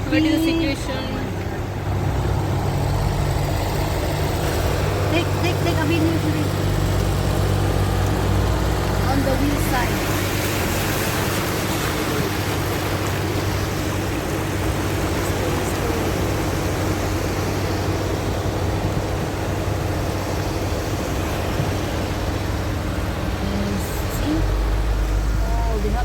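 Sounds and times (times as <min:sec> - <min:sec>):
low engine hum: 0:00.0 - 0:26.0
water rushing from car wheels: 0:00.0 - 0:26.0.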